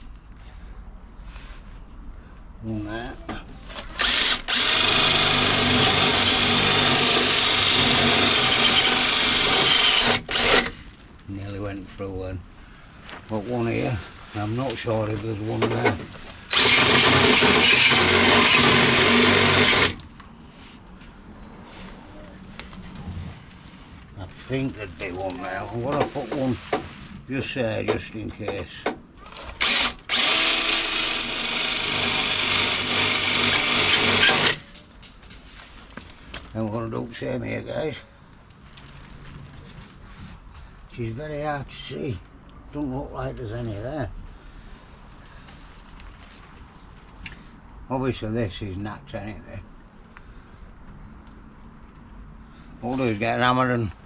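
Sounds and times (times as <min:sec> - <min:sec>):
electric drill grinding into metal: 0:04.0 - 0:10.8, 0:15.6 - 0:20.0, 0:29.5 - 0:34.6.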